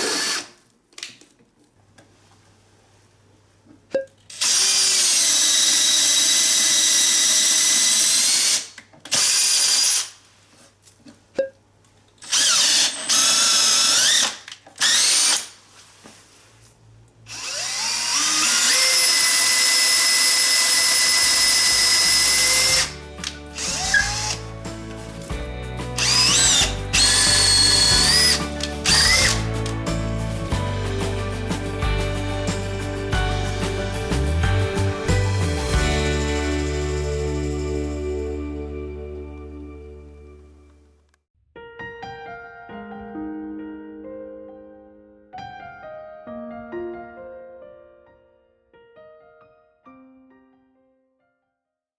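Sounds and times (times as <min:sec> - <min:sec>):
cordless drill motor whining: 0:00.0 - 0:00.6, 0:04.4 - 0:10.1, 0:12.2 - 0:15.4, 0:17.3 - 0:23.0, 0:23.6 - 0:24.4, 0:26.0 - 0:29.4
background music: 0:20.1 - 0:40.8.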